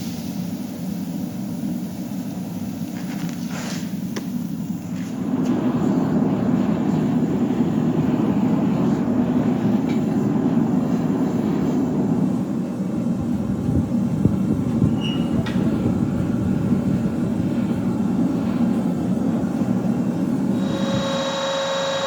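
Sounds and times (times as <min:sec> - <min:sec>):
forge roaring: 0:20.6 - 0:22.0.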